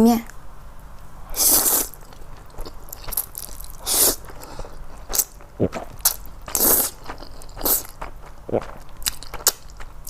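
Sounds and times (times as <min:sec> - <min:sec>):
person slurping noodles: 0:01.3 - 0:02.0, 0:03.8 - 0:08.8.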